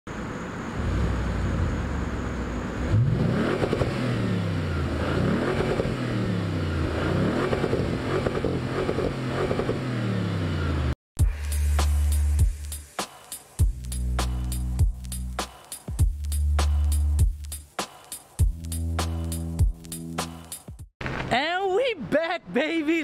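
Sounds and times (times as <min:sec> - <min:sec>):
car engine revving: 0:00.6 - 0:12.4.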